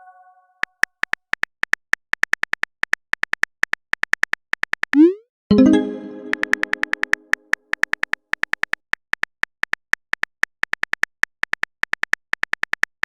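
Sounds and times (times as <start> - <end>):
musical chime: 5.5 - 6.8.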